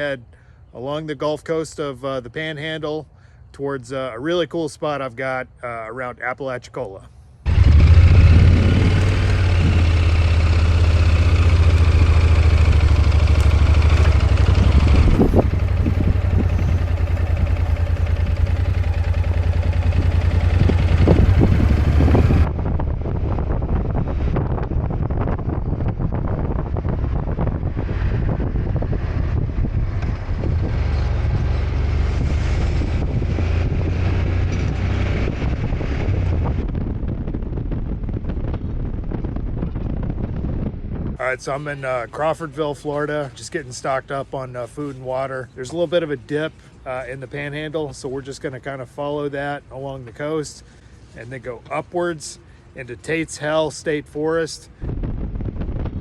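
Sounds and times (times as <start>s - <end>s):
motorcycle engine drone: 7.4s - 41.9s, 54.8s - 56.0s
wind rushing over microphone: 7.5s - 43.2s, 54.6s - 56.0s.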